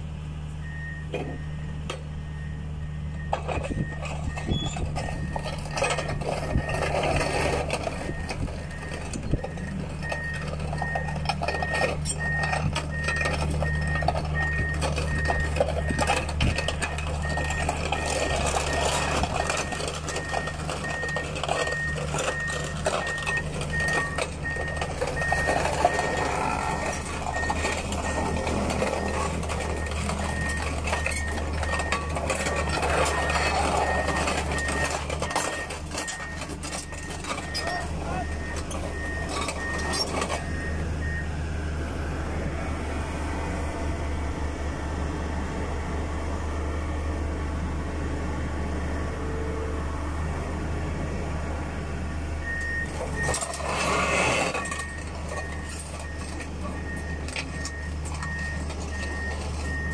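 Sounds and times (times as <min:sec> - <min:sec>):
backhoe engine under load: 0:00.0 - 0:59.9
reversing alarm beeping: 0:00.6 - 0:41.4, 0:52.4 - 0:59.9
metal clanks and knocks: 0:03.2 - 0:40.7, 0:52.8 - 0:59.9.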